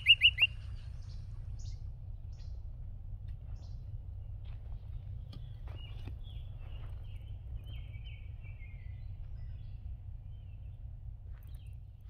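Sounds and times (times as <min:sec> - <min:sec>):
birds calling and singing: 0:00.0 - 0:12.0
steady low rumble: 0:00.0 - 0:12.0.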